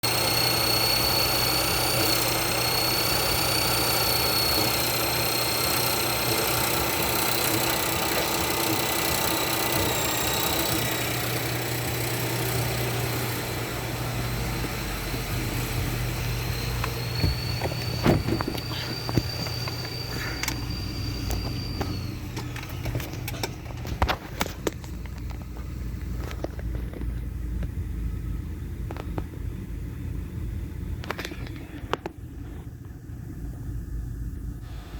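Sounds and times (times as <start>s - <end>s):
faint high whine: 0.0s - 27.0s
car engine idling: 0.0s - 34.9s.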